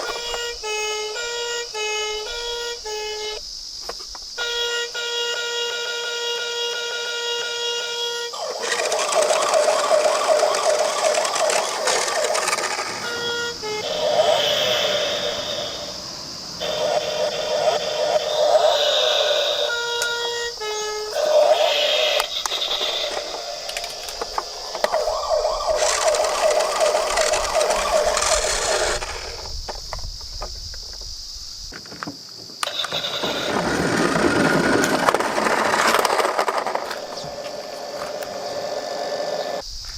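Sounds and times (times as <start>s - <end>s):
toy vehicles clicking: 0.0s - 31.1s, 31.7s - 39.6s
steady buzzing tone: 0.0s - 31.7s
rushing hiss: 0.0s - 39.9s
ambulance siren wailing: 4.4s - 29.4s.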